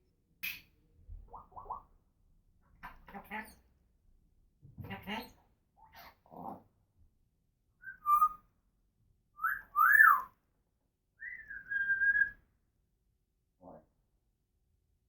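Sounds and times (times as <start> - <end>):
parrot whistling: 9.4 - 10.2, 11.2 - 12.4.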